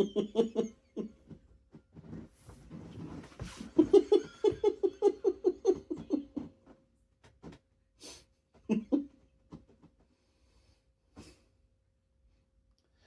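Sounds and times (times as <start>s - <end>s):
man laughing: 3.6s - 6.5s.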